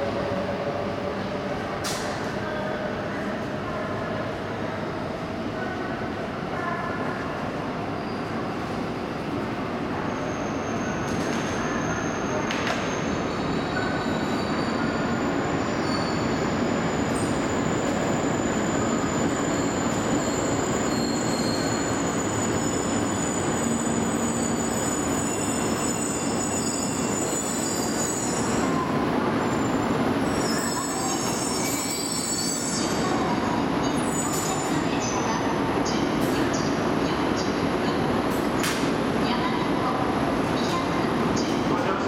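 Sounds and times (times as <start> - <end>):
high squealing from train wheels: 7.9 - 8.4, 10.0 - 36.8.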